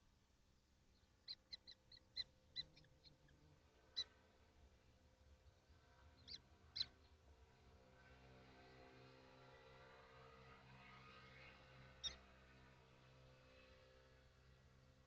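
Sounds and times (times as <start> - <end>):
kestrels high-pitched calls: 1.2 - 3.2, 3.9 - 4.2, 6.2 - 6.9.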